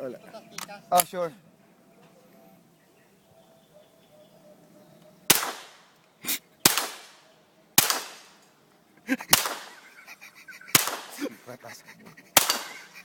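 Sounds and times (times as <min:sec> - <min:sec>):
rifle shots with echo: 0:05.3 - 0:05.9, 0:06.6 - 0:08.4, 0:09.3 - 0:09.8, 0:10.7 - 0:11.2, 0:12.4 - 0:12.9.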